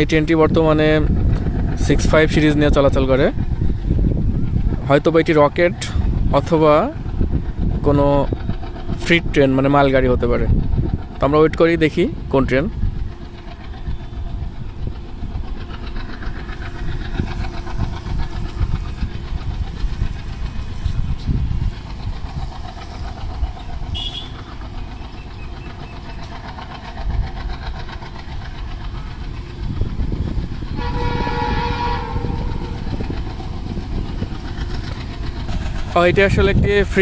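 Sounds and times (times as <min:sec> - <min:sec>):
train low rumble: 0:00.0 - 0:37.0
locomotive horn: 0:23.9 - 0:24.5, 0:30.8 - 0:32.9.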